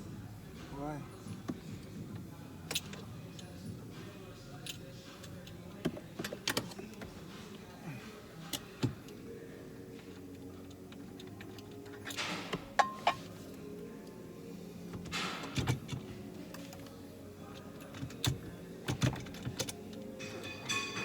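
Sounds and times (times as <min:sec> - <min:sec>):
faint background music: 0:00.0 - 0:21.0
tools clicking and knocking: 0:10.9 - 0:13.2.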